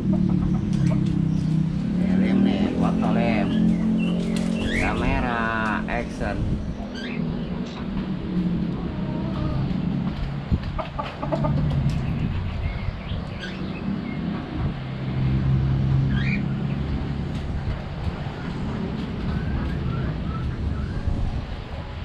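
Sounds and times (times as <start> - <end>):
budgerigars chirping: 2.2 - 5.7, 6.6 - 7.6, 10.9 - 14.2, 16.1 - 16.6.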